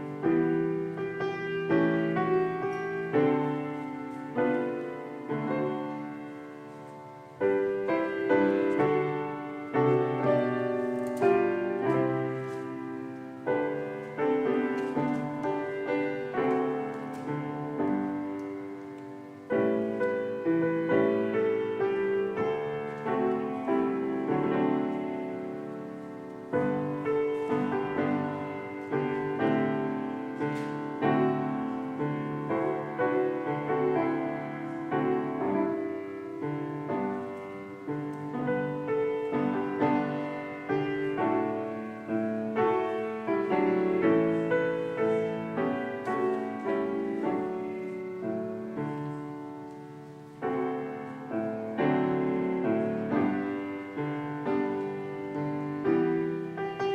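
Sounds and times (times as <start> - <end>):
slow gentle solo piano: 0.0 - 56.9.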